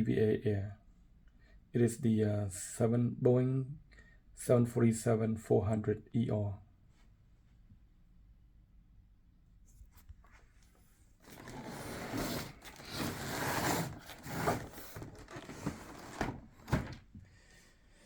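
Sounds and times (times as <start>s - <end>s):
cardboard box rubbing and scraping: 11.2s - 17.0s.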